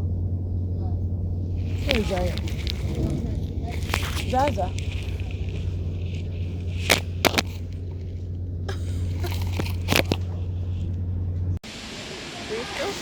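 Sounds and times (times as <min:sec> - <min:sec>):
train rumbling: 0:00.0 - 0:13.0
sharp clicks and knocks: 0:01.6 - 0:08.3.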